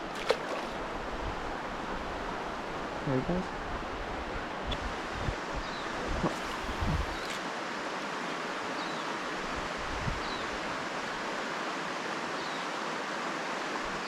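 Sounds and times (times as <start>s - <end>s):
creek water rushing: 0.0s - 14.0s.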